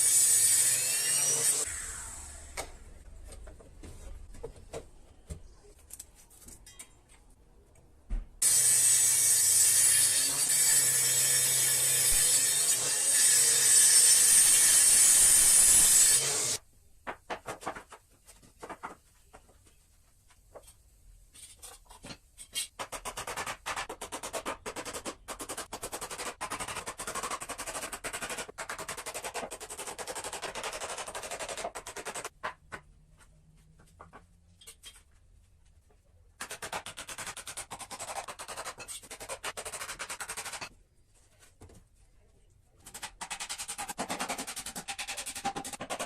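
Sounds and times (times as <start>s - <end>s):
power tool cutting wood: 0.0s - 2.8s, 8.4s - 16.6s.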